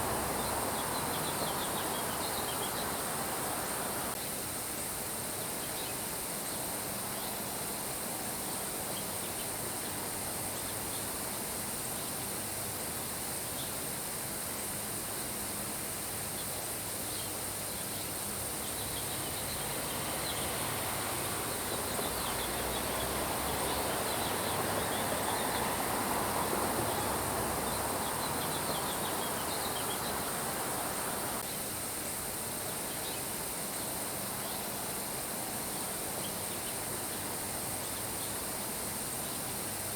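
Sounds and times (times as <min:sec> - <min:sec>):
birds chirping: 0:00.0 - 0:04.2, 0:18.6 - 0:31.4
steady rain: 0:00.0 - 0:04.2, 0:18.1 - 0:32.7.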